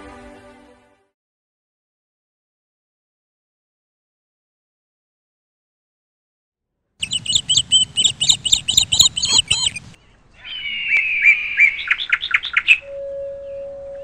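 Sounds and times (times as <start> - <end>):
thin falling bird whistle: 7.0 - 10.0
songbirds chirping: 7.0 - 14.0.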